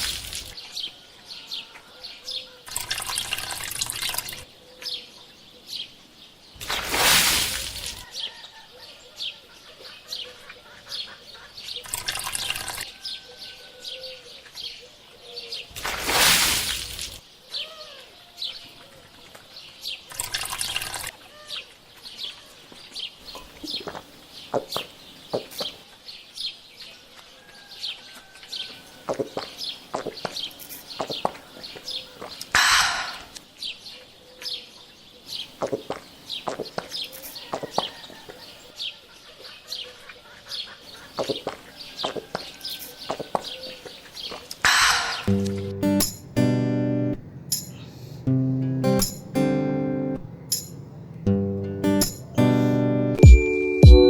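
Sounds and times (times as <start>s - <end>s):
running splashing water: 6.6s - 8.0s, 15.8s - 17.2s
small birds chirping: 33.2s - 53.3s.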